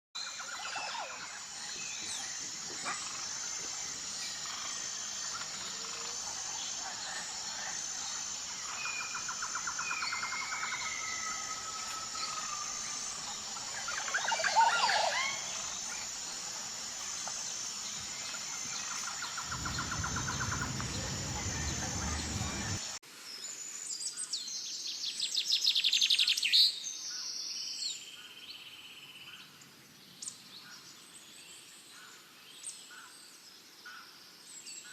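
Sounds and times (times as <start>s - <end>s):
birds calling and singing: 0.2s - 23.0s
high-pitched pulsing trill: 1.2s - 22.9s
low rumble: 18.1s - 23.0s.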